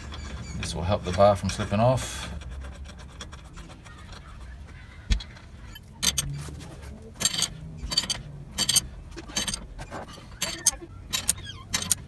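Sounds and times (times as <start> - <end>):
metal clinks of wrench: 7.2 - 9.6, 10.4 - 12.0.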